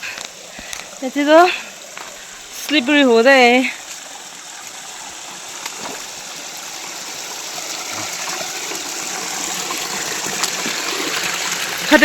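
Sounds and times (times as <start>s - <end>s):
waterfall water rushing: 0.0s - 12.0s.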